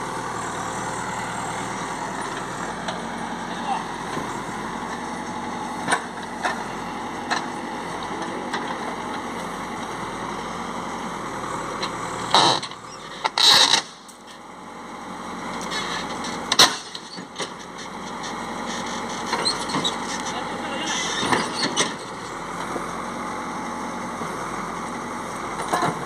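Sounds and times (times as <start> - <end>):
heavy machinery engine running: 0.0 - 26.0.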